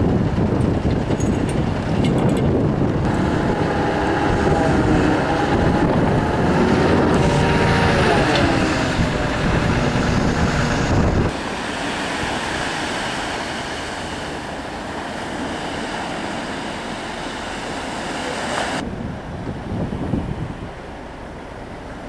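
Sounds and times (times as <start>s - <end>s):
heavy low rumble: 0.0s - 12.6s
wind buffeting microphone: 0.0s - 15.7s, 18.6s - 22.0s
storm surf: 0.0s - 22.0s.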